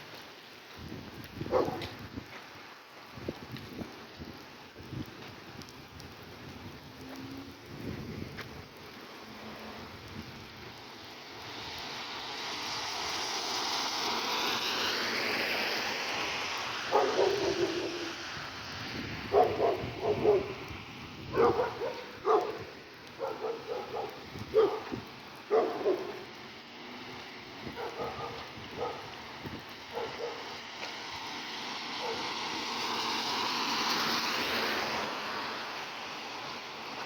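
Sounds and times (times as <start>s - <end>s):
rain hiss: 0.0s - 37.0s
dog barking: 1.5s - 2.0s, 16.9s - 18.1s, 19.3s - 20.6s, 21.3s - 22.6s, 23.2s - 26.3s, 27.7s - 29.1s, 29.9s - 30.5s, 32.0s - 32.3s.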